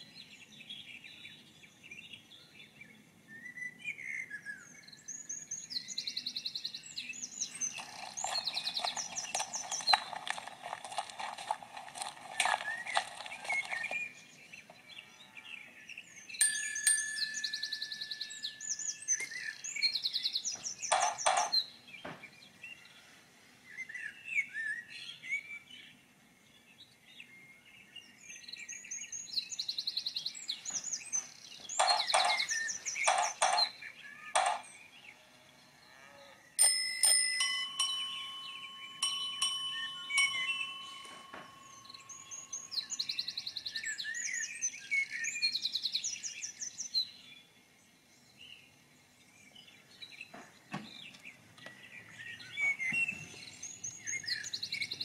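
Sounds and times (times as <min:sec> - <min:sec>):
birds chirping and trilling: 0:00.0 - 0:55.0
ringing bell strikes: 0:16.4 - 0:18.8, 0:36.6 - 0:43.0.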